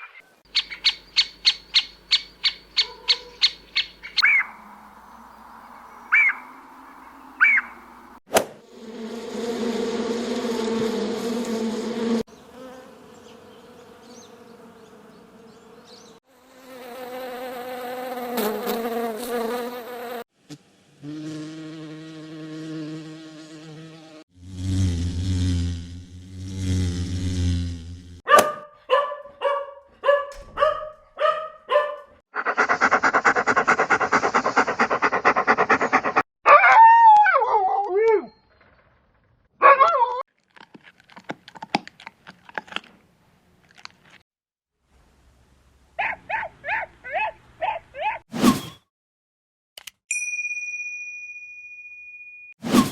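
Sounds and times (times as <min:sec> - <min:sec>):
insects buzzing: 0:00.4 - 0:28.2
dog barking: 0:02.4 - 0:04.5, 0:28.3 - 0:36.8, 0:39.6 - 0:40.2, 0:46.0 - 0:48.2
warbling gliding animal calls: 0:06.1 - 0:07.8.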